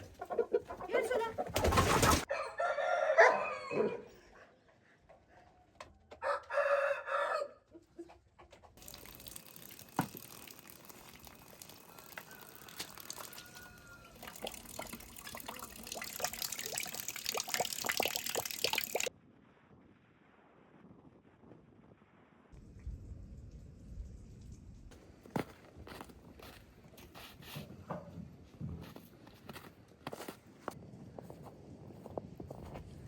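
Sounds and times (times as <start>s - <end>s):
rooster crowing: 2.3s - 4.1s, 6.2s - 7.6s, 11.6s - 14.7s.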